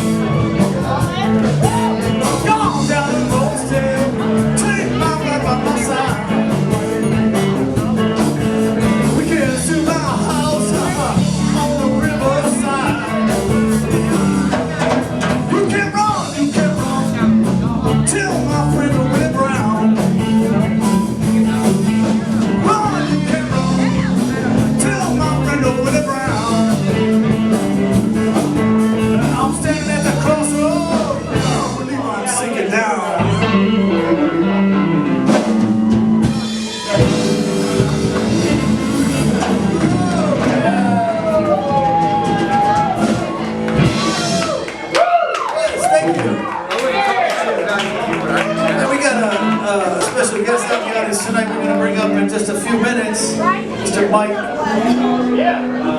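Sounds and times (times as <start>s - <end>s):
electric guitar: 0.0s - 32.4s, 33.0s - 55.9s
live blues band playing: 0.0s - 55.9s.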